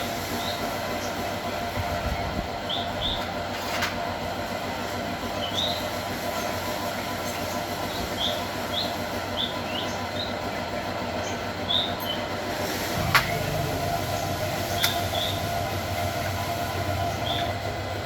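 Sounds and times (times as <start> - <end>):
small engine running: 12.9 - 18.0.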